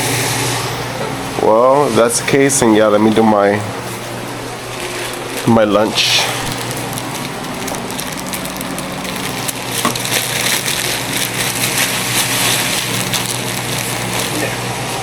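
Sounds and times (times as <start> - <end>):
steady low hum: 0.0 - 15.0
meat sizzling in a pan: 6.4 - 14.5.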